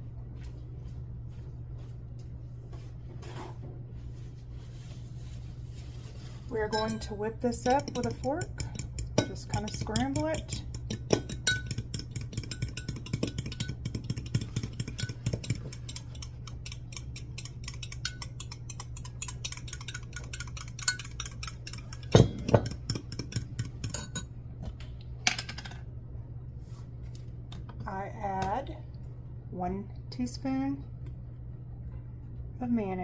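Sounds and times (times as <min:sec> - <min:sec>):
fork beating eggs: 0:06.6 - 0:24.2.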